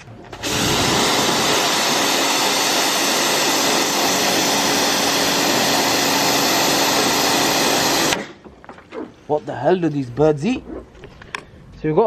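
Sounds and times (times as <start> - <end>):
pressure washer spraying water: 0.3 - 8.3.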